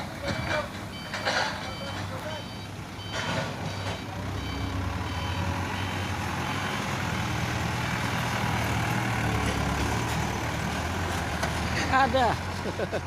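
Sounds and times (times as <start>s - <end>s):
truck reversing alarm beeping: 0.0s - 7.6s
diesel engine hum: 0.0s - 13.0s.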